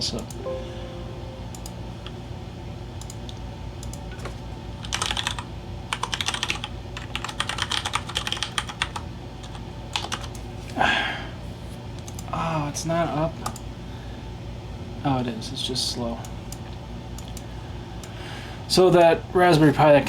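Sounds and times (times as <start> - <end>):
steady low hum: 0.0 - 7.8
sweeping sound: 0.4 - 2.0
computer keyboard typing: 3.8 - 10.5.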